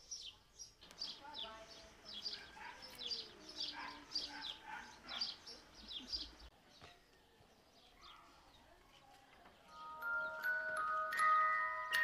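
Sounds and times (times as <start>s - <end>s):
faint outdoor background: 0.0s - 12.0s
small birds chirping: 0.0s - 12.0s.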